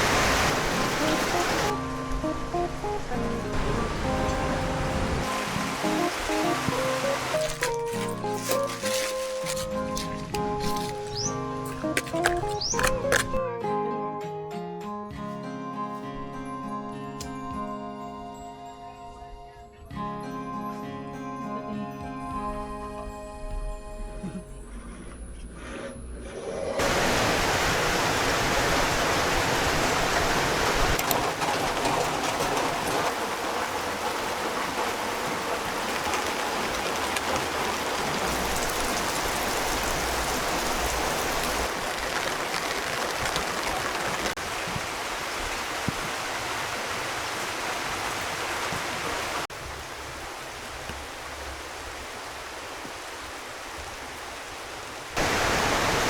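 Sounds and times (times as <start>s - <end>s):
heavy rain falling: 0.0s - 11.3s, 26.8s - 56.0s.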